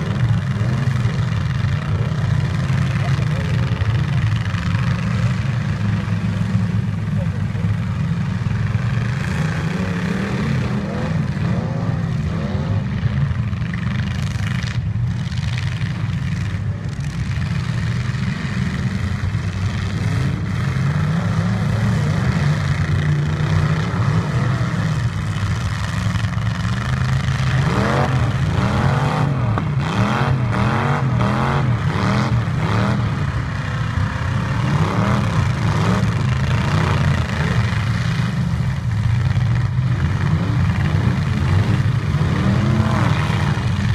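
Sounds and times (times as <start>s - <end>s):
truck engines revving: 0.0s - 43.9s.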